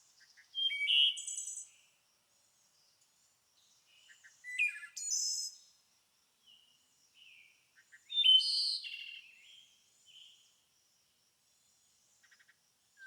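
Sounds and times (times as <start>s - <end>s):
songbird song phrases: 0.0s - 13.0s
faint bird chirps: 0.1s - 2.0s, 3.8s - 5.7s, 6.4s - 10.6s.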